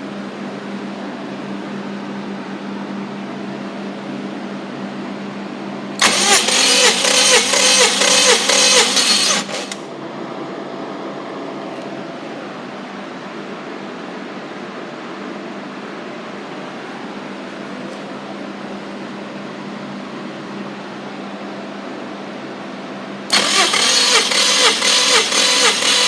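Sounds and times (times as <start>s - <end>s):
engine cranking by starter motor: 6.0s - 9.9s, 23.3s - 26.0s.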